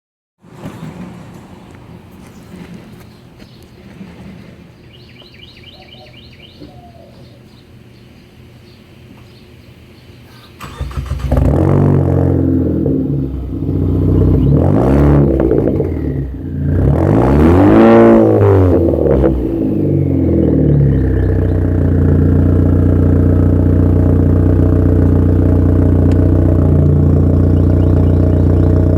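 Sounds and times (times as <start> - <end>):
bird chirping: 2.3 - 10.8, 14.2 - 14.9, 20.4 - 21.8, 26.8 - 28.9
car engine starting and revving: 10.6 - 28.9.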